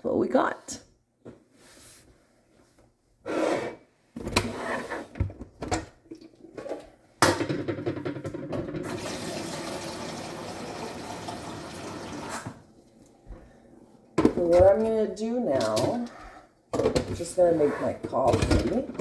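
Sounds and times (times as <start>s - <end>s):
tap water filling container: 8.8s - 12.7s
handling knocks and clunks: 16.7s - 19.0s.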